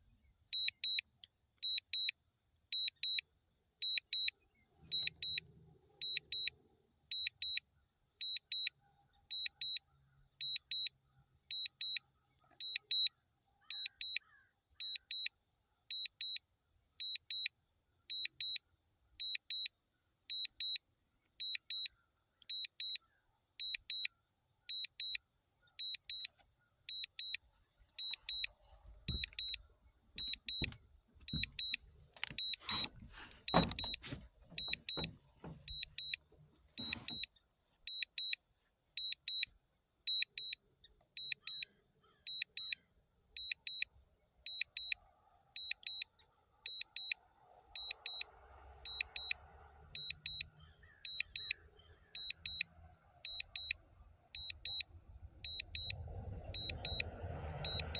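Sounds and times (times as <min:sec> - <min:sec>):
knocks and rustling: 0:28.9 - 0:35.9
high double beeps: 0:29.1 - 0:29.6, 0:30.2 - 0:36.2, 0:57.6 - 0:57.9.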